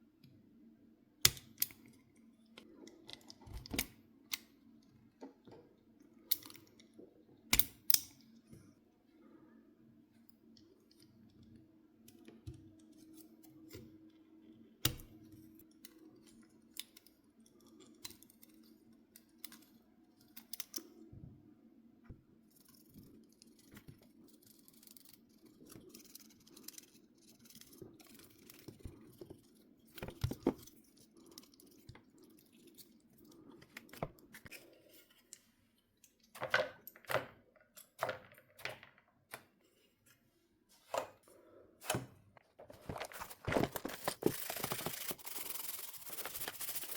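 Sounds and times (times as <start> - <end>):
clicks of small parts and tools: 14.8 - 21.0.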